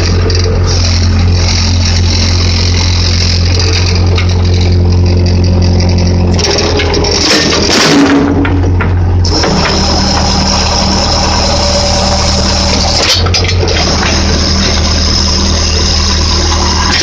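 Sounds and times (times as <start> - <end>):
hydraulics hissing: 0.0 - 5.0, 9.0 - 17.0
backhoe engine under load: 0.0 - 17.0.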